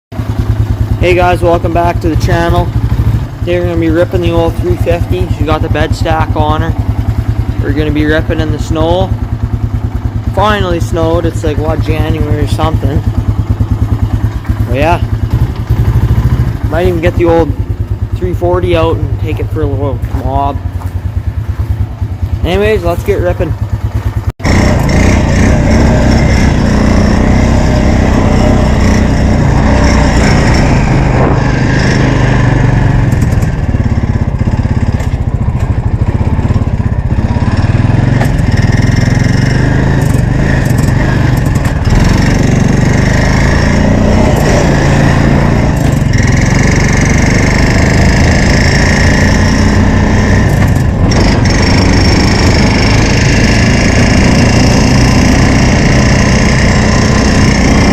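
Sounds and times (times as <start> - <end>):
motorcycle engine running hard: 0.1 - 57.9.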